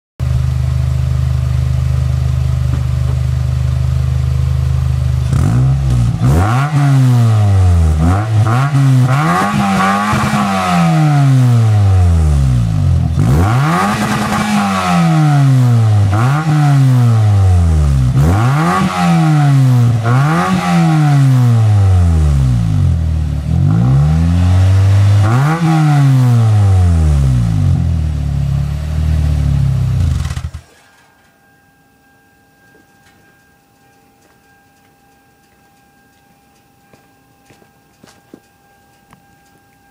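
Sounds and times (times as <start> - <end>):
car exhaust idling and revving: 0.2 - 30.8.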